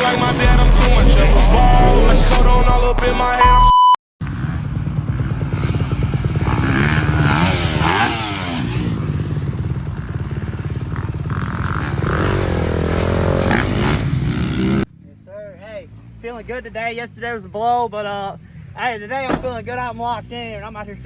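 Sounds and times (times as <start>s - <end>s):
dirt bike engines revving: 4.2s - 21.0s.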